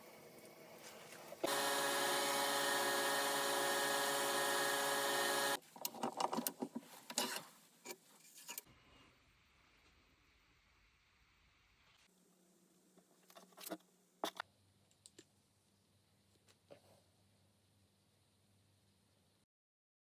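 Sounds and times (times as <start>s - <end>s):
power tool motor running: 1.4s - 5.6s
handling clicks and knocks: 5.8s - 7.4s.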